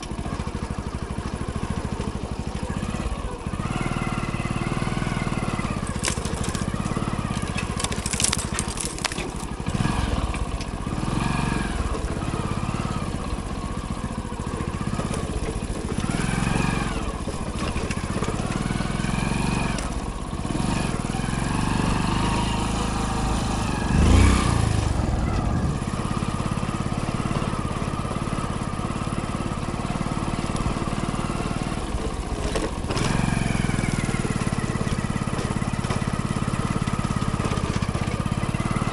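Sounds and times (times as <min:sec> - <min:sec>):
motorcycle engine revving: 0:00.0 - 0:38.9
motorcycle knocking over rough trail: 0:00.0 - 0:38.9
rattling clicks: 0:05.8 - 0:09.6.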